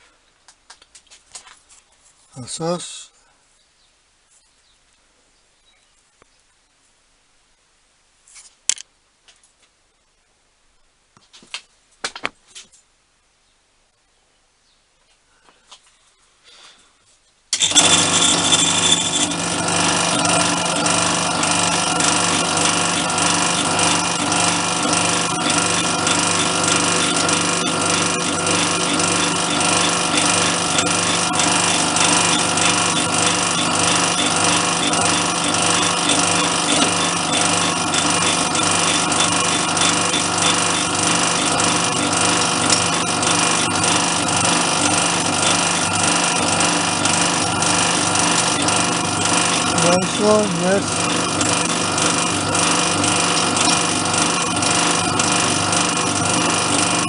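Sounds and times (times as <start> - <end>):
machine tool drilling metal: 17.6 - 57.0.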